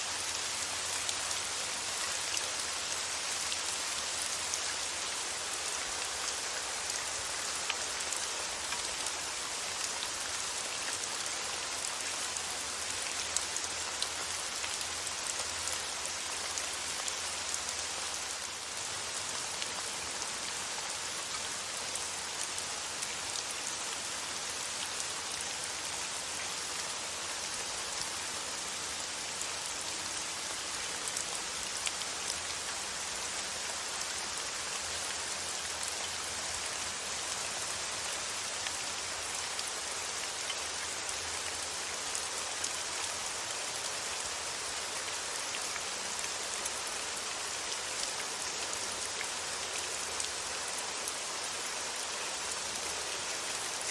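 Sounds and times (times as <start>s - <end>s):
steady rain hissing: 0.0s - 53.9s.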